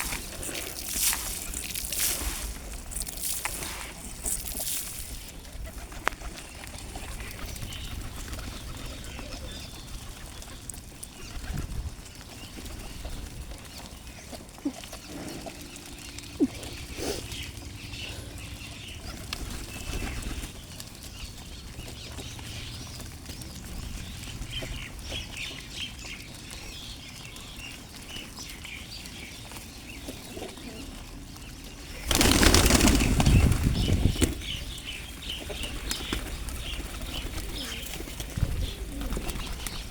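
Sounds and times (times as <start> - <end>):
wings flapping: 32.0 - 34.6, 35.4 - 39.9.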